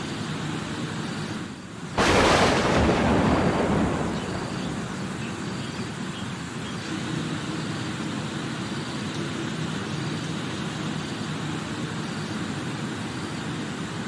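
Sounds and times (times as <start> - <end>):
heavy rain hissing: 1.8 - 6.2
thunderclap: 2.0 - 6.0.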